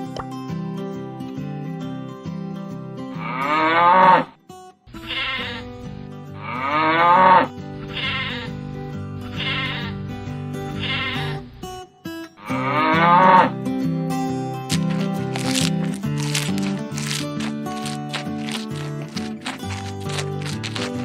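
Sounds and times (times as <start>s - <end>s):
background music: 4.9s - 21.0s
farm animal bleating: 5.0s - 5.8s, 6.4s - 11.5s, 12.4s - 13.5s, 15.6s - 21.0s.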